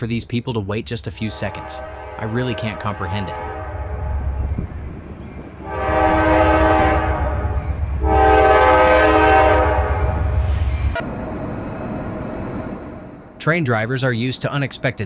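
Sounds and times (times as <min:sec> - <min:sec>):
moving train rumble: 0:00.8 - 0:15.0
train horn blasts: 0:01.2 - 0:04.7, 0:05.6 - 0:10.3.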